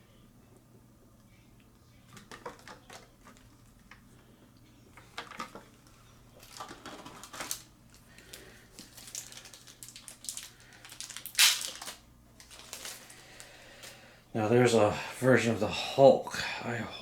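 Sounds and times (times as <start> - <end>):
packaging rustling and crinkling: 2.1 - 4.0, 5.0 - 14.0.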